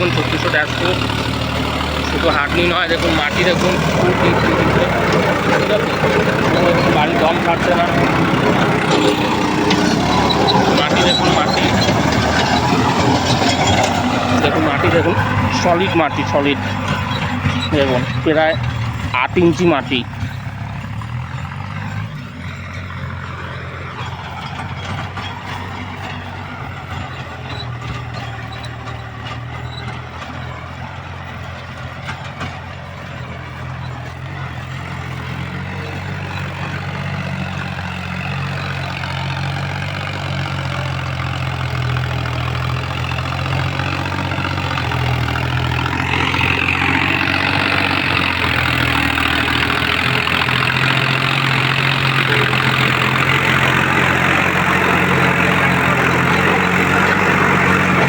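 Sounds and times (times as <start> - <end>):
rotavator churning soil: 0.0 - 21.2
tractor diesel engine running: 0.0 - 58.0.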